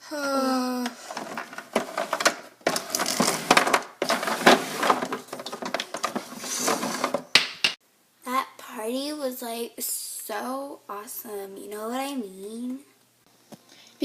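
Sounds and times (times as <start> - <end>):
plastic toys clattering: 0.8 - 7.8.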